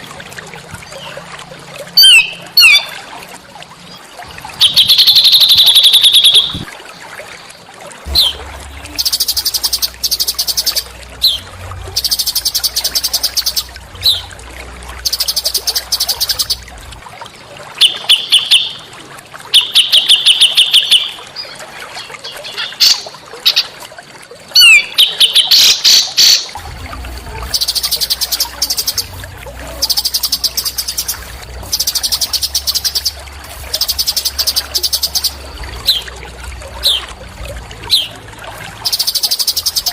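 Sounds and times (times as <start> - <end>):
songbird buzzy trills: 3.9 - 6.7, 8.1 - 16.9, 24.6 - 39.9.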